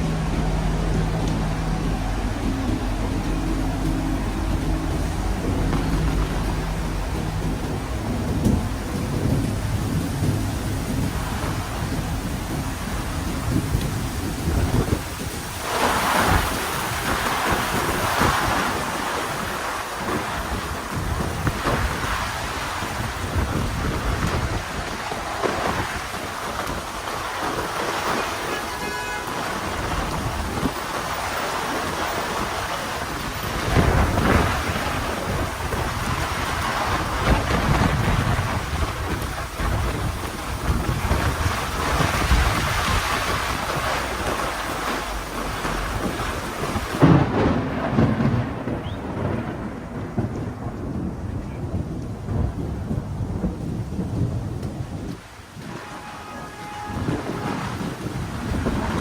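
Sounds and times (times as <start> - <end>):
deep low rumble: 0.0 - 15.6
heavy rain on street: 0.0 - 59.0
thunder rumbling: 0.0 - 59.0.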